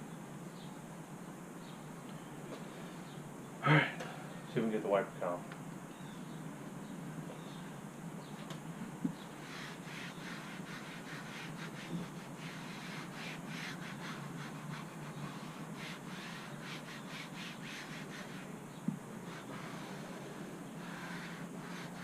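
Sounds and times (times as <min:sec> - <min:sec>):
steady low hum: 0:00.0 - 0:22.0
applicator pad rubbing plastic: 0:09.3 - 0:18.5, 0:19.2 - 0:22.0.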